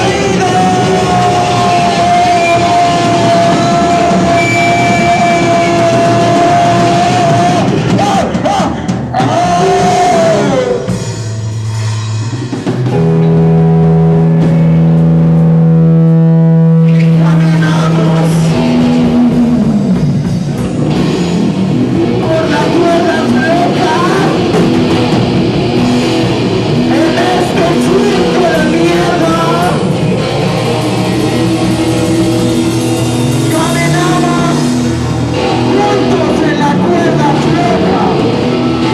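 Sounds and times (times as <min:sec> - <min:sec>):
live rock band with guitar: 0:00.0 - 0:38.9.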